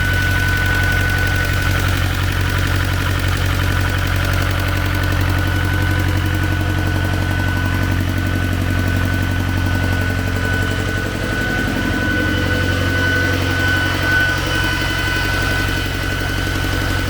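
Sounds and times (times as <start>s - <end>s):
diesel tractor engine running: 0.0s - 17.0s
thin steady whine: 4.2s - 17.0s.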